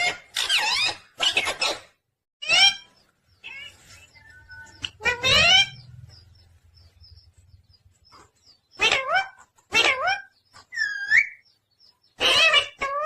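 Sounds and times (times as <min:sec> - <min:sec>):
parrot squawking: 0:00.0 - 0:06.2, 0:08.7 - 0:11.4, 0:12.1 - 0:13.0.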